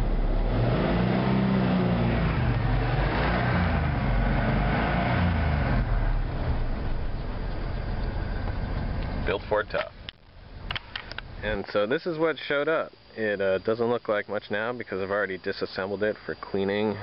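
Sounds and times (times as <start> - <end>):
pickup engine revving: 0.0 - 9.3.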